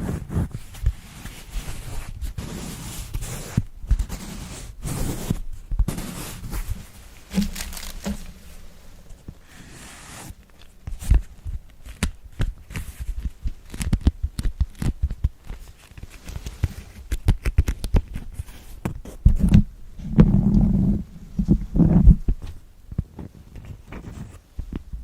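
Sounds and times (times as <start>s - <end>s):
crinkles: 0.0s - 19.6s.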